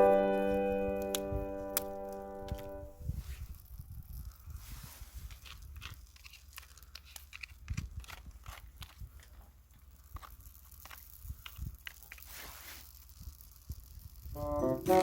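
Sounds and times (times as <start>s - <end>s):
low steady hum: 0.0s - 3.1s
small crunches and clicks: 3.6s - 14.3s.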